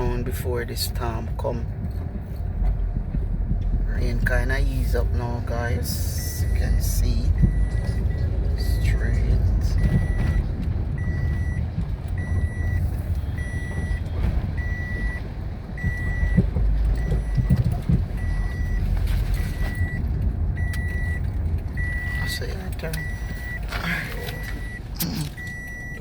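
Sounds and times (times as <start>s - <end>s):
motor vehicle rumble: 0.0s - 26.0s
electronic warning beep: 5.9s - 11.6s, 12.2s - 15.2s, 15.8s - 17.6s, 18.2s - 26.0s.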